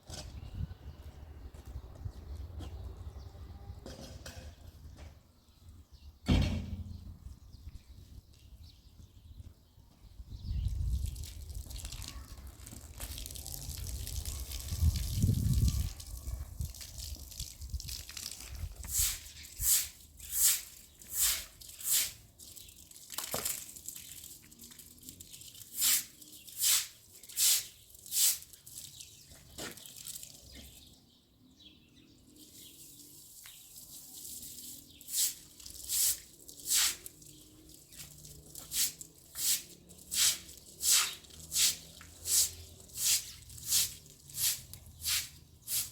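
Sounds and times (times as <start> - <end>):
broom sweeping wet ground: 12.7 - 30.8, 32.3 - 45.9.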